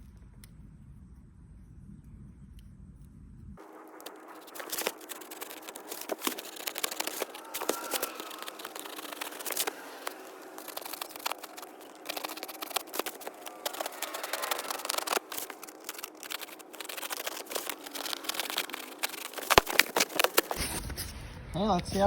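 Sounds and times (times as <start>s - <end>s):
cardboard being cut and handled: 3.7s - 21.2s.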